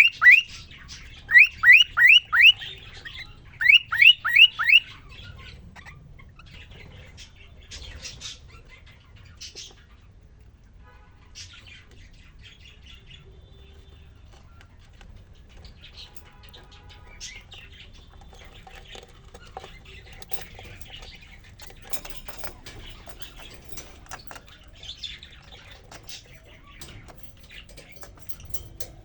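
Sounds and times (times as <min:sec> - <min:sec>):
cockatiel whistling: 0:00.0 - 0:00.5, 0:01.3 - 0:02.6, 0:03.6 - 0:04.8
faint bird chirps and clicks: 0:00.0 - 0:10.5, 0:11.4 - 0:29.0.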